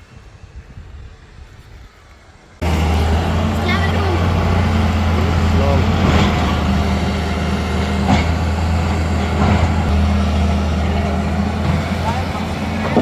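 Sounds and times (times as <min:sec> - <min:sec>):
heavy machinery engine humming: 0:02.6 - 0:13.0.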